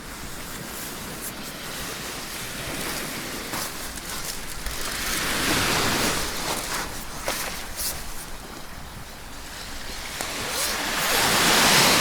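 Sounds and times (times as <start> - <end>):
sea waves washing onto beach: 10.0 - 12.0.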